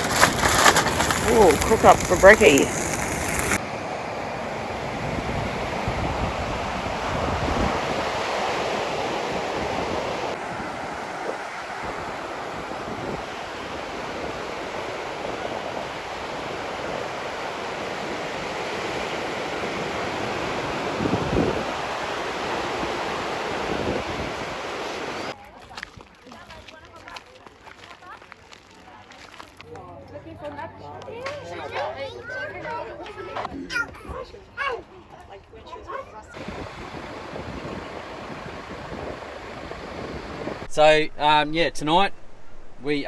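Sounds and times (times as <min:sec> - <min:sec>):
wind on microphone: 0:00.0 - 0:25.3, 0:36.4 - 0:41.2
ocean surf washing on beach: 0:00.0 - 0:25.4, 0:36.4 - 0:43.0.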